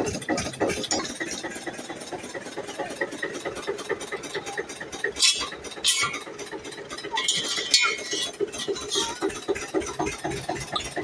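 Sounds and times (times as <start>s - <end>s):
tractor diesel engine chugging: 0.0s - 11.0s.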